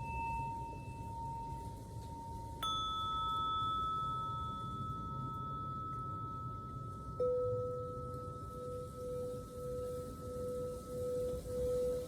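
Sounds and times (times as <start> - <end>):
singing bowl ringing: 0.0 - 12.0
singing bowl struck: 2.6 - 12.0.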